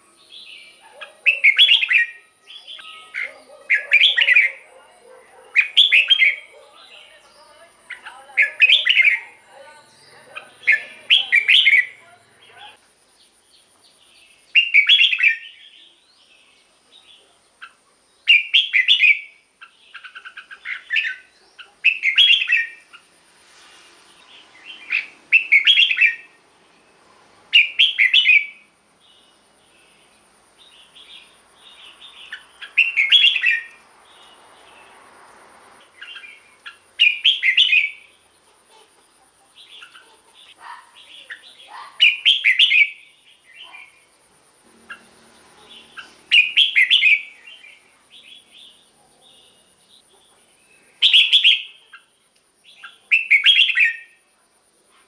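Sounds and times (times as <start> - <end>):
bird song phrases: 0.0 - 23.1, 23.7 - 55.0
bird chattering notes: 7.7 - 12.8.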